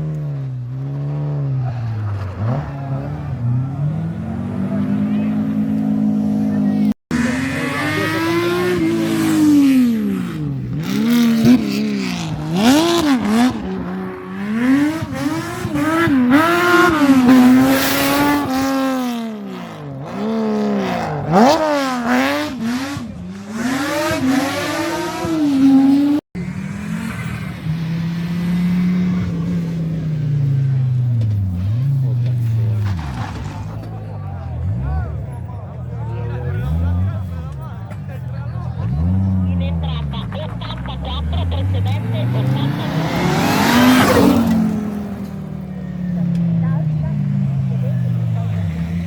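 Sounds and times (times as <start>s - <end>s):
rally car engine revving: 0.0s - 49.0s
engine running steadily: 37.4s - 43.4s.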